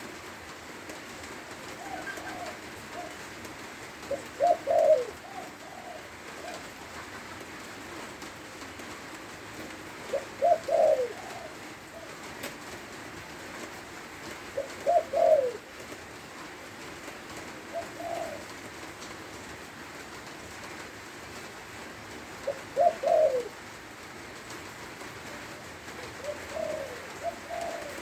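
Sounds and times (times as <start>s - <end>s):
dove cooing: 1.2s - 8.9s, 9.5s - 12.7s, 13.5s - 16.5s, 17.2s - 19.4s, 22.2s - 28.0s.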